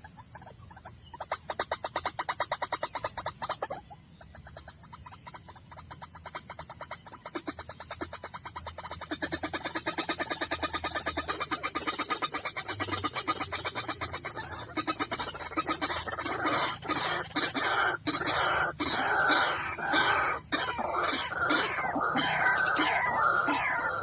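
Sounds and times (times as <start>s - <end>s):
waterhen calls: 6.1s - 24.0s.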